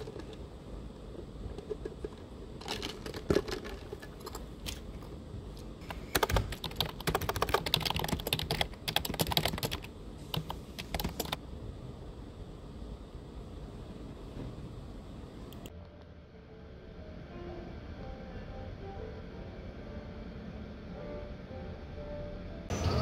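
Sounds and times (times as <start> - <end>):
typing on computer keyboard: 5.8 - 11.4.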